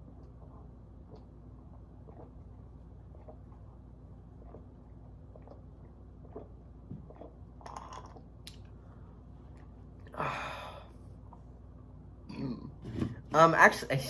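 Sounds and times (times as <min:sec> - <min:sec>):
man sipping and swallowing: 0:00.1 - 0:10.4.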